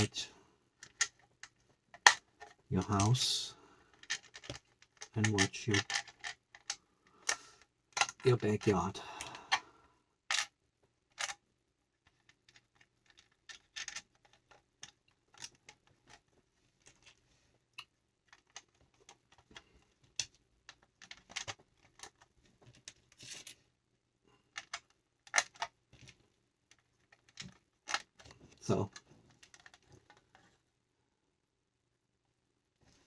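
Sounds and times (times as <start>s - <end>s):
plastic pieces clicking: 0.8s - 3.1s, 3.9s - 8.3s, 10.3s - 10.5s, 11.1s - 11.4s, 12.0s - 17.2s, 18.3s - 23.5s, 24.5s - 26.1s, 26.7s - 30.4s.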